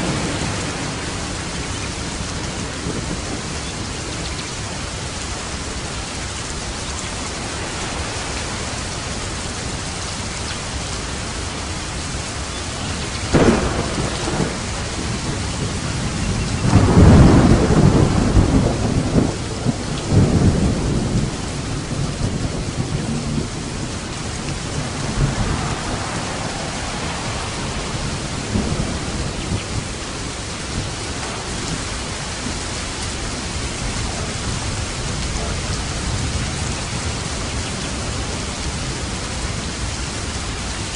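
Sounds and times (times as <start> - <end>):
rolling thunder rumble: 0.0 - 40.9
steady rain falling: 0.0 - 40.9
thunder crack: 13.3 - 32.6.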